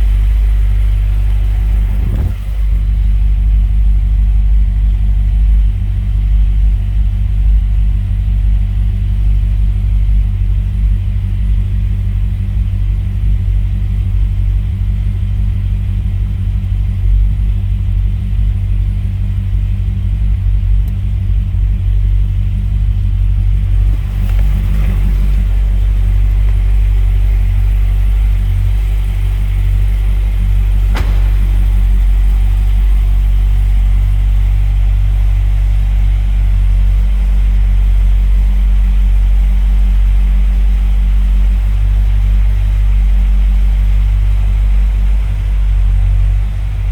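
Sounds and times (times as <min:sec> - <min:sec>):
car engine idling: 0:00.0 - 0:46.9
sharp click: 0:30.9 - 0:32.7.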